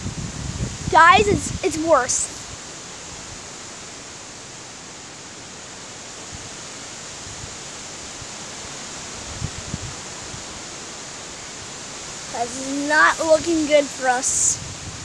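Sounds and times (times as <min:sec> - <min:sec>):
strong wind blowing: 0:00.0 - 0:03.4, 0:09.1 - 0:10.7, 0:11.9 - 0:15.0.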